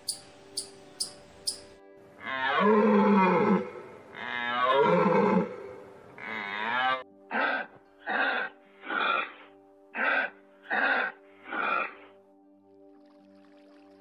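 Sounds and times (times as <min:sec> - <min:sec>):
background music: 0:00.0 - 0:14.0
animal calling: 0:06.2 - 0:12.1.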